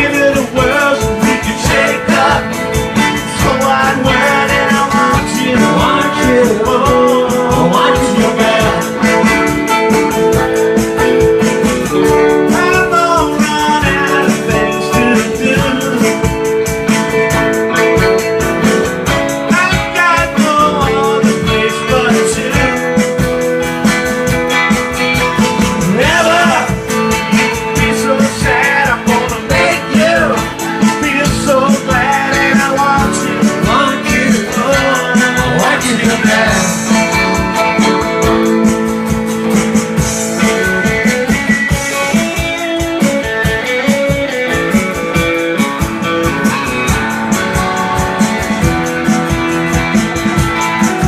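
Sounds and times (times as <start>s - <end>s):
person singing: 0.0s - 10.6s, 12.3s - 16.6s, 19.4s - 23.2s, 25.8s - 37.4s
guitar: 0.0s - 51.0s
live rock band playing: 0.0s - 51.0s
steady drum beat: 0.0s - 51.0s.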